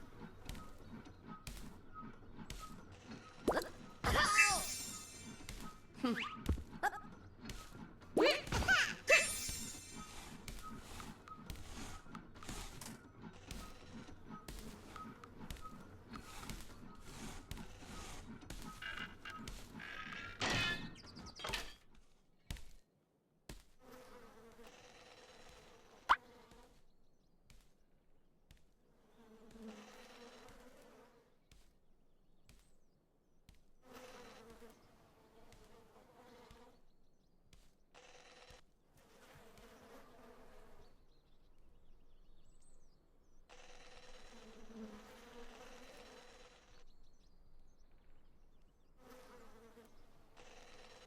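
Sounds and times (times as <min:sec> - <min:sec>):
insect-like buzz: 0:29.0 - 0:31.6, 0:33.8 - 0:36.9, 0:43.5 - 0:47.2, 0:48.0 - 0:51.0.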